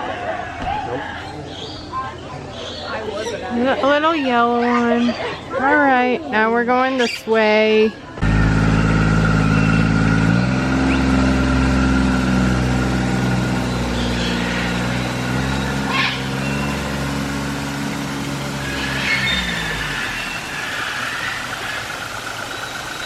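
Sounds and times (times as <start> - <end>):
engine running steadily: 8.2 - 23.0.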